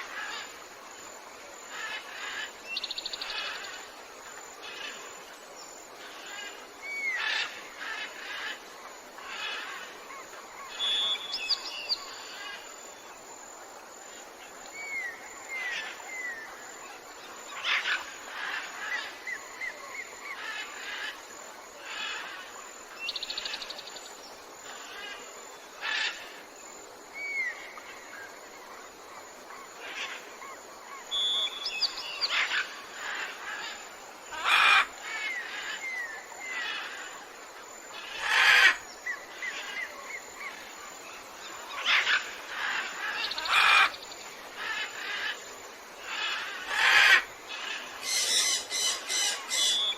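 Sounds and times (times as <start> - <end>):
jungle birds chirping: 0.0 - 49.9
steady background hiss: 0.0 - 49.9
sharp bird calls: 46.1 - 49.9.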